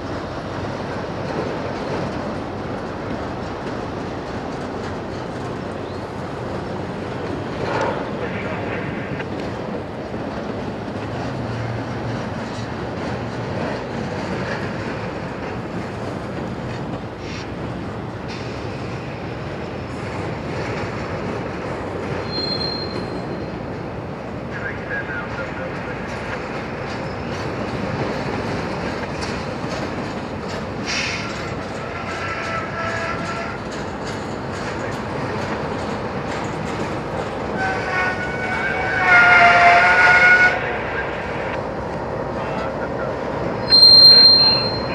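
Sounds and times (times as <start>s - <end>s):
freight train rumbling past: 0.0s - 44.9s
faint high wheel squeal: 22.2s - 23.5s, 43.6s - 44.9s
train wheels clicking over rail joints: 25.8s - 38.6s
brief high-pitched sound: 43.7s - 44.9s.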